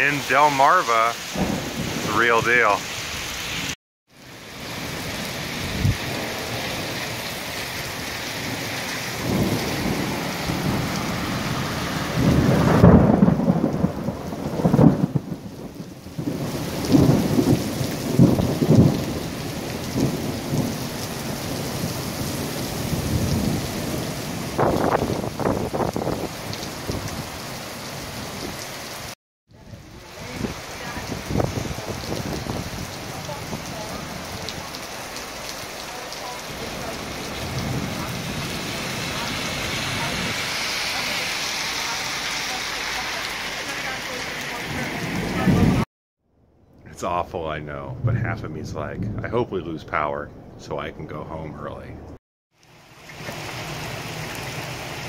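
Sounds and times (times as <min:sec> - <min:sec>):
thunder rumbling: 0:00.0 - 0:03.8, 0:04.5 - 0:28.6, 0:29.6 - 0:45.9, 0:46.8 - 0:52.2
heavy rain pouring: 0:00.0 - 0:45.9, 0:52.5 - 0:55.0
low burst: 0:46.8 - 0:49.6.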